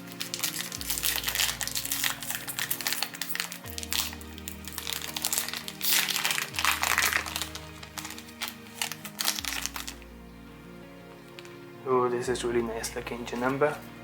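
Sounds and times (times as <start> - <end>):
wrapper crinkling: 0.0 - 10.1, 11.3 - 11.6
background music sustained chords: 0.0 - 14.0.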